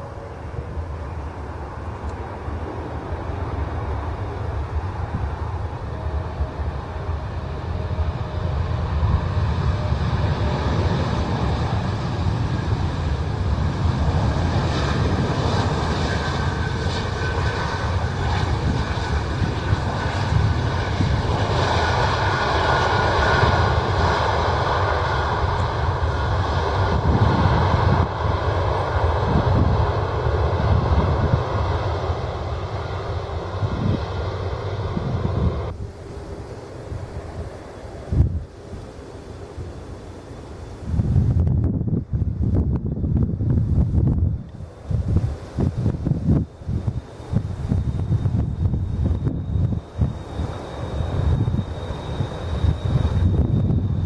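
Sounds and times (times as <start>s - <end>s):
wind rumble on microphone: 0.0s - 39.0s, 40.6s - 54.0s
jet engines roaring and whining: 0.0s - 54.0s.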